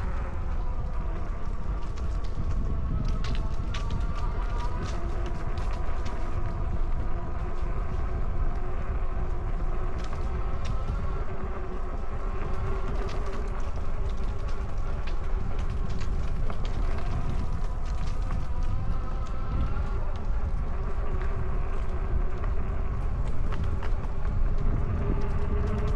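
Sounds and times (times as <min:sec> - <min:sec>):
small clicks and rattles: 0:00.0 - 0:11.5
wind on microphone: 0:00.0 - 0:25.9.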